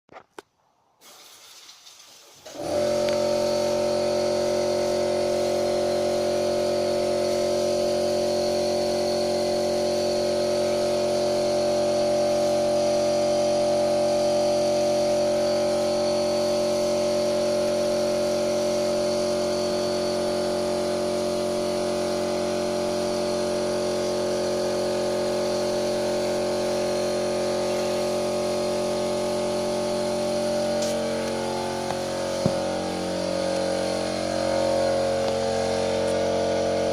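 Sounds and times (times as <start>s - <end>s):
car engine idling: 26.2s - 36.9s.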